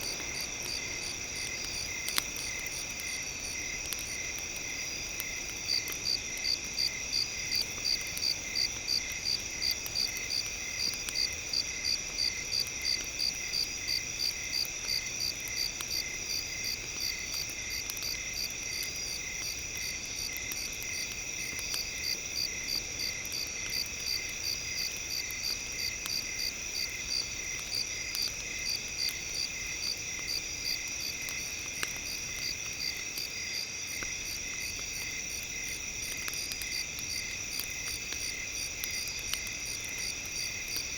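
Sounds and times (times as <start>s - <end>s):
campfire crackle: 0.0s - 40.9s.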